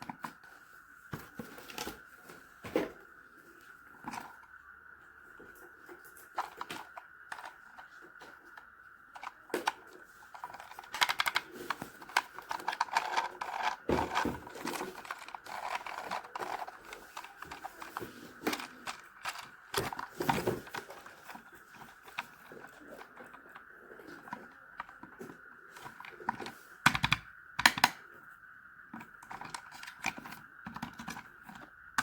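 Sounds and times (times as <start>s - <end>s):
small plastic clicks and taps: 25.8s - 28.0s.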